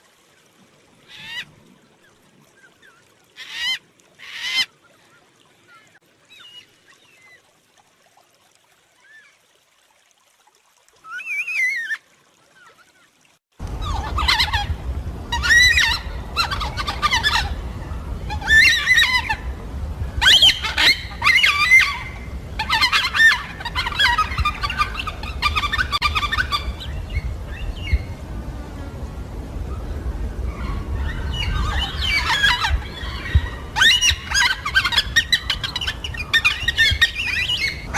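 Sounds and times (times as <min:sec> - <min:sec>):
low steady rumble: 0:13.6 - 0:37.9
cockatoo calling: 0:13.8 - 0:19.6, 0:20.2 - 0:28.0, 0:30.5 - 0:37.9.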